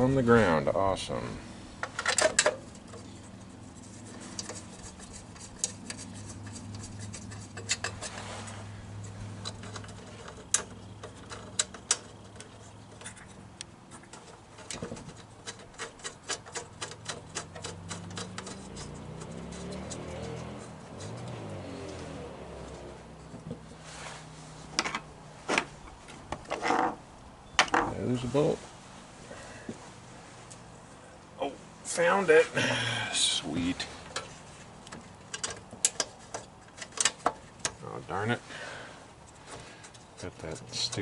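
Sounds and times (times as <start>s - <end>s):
hand tools and metal parts clicking: 1.8s - 23.8s, 24.7s - 27.0s, 33.5s - 41.0s.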